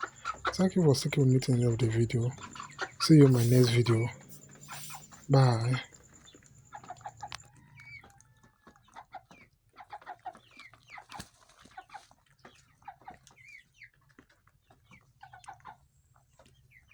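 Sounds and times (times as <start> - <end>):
chickens clucking and peeping: 0.0 - 11.2.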